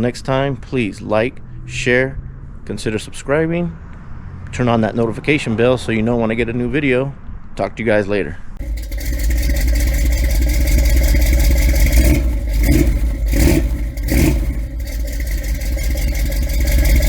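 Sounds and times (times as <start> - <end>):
car engine revving: 8.6 - 17.0.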